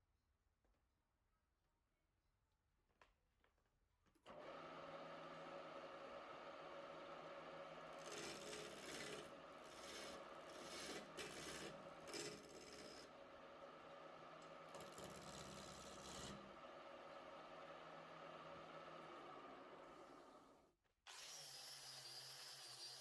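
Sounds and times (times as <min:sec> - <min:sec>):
wood lathe motor hum: 0:06.7 - 0:16.6
tool scraping spinning wood: 0:08.0 - 0:13.1, 0:14.7 - 0:16.4.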